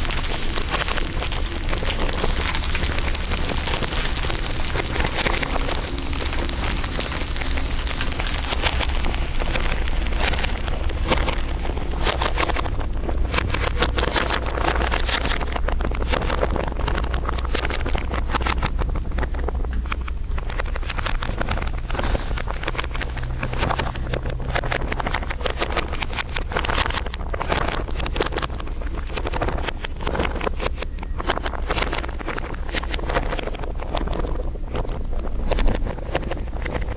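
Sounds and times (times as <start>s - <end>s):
dense crinkling crackles: 0.0s - 36.9s
steady low hum: 0.0s - 36.9s.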